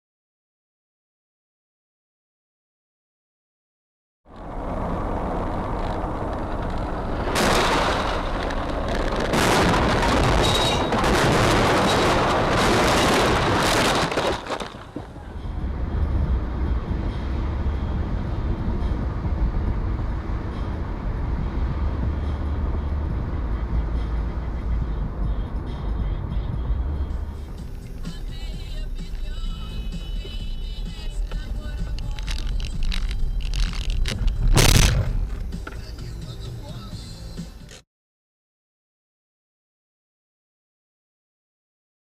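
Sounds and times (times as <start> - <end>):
loud rushing vehicle noise: 4.3 - 37.6
low vehicle rumble: 4.3 - 37.8.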